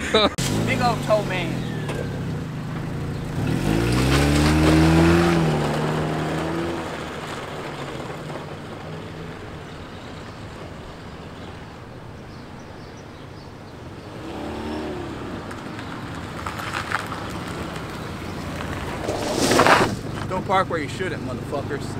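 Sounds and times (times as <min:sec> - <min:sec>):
car engine revving: 0:00.0 - 0:21.9.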